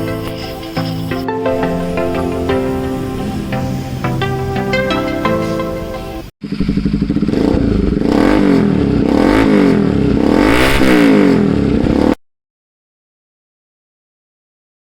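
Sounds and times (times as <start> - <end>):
motorcycle engine revving: 6.4 - 12.2.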